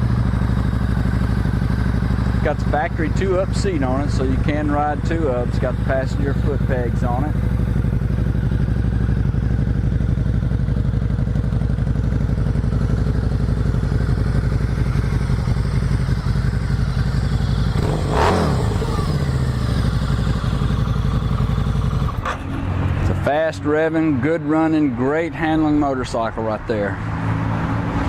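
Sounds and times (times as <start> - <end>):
motorcycle engine idling: 0.0 - 25.6.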